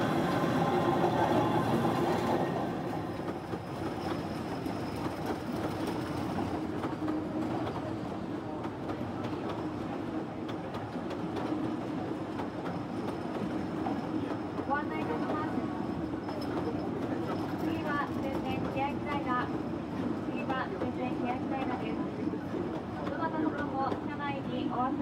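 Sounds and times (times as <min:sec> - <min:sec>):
electric locomotive hum: 0:00.0 - 0:07.8
train wheels clicking on rail joints: 0:01.6 - 0:07.9.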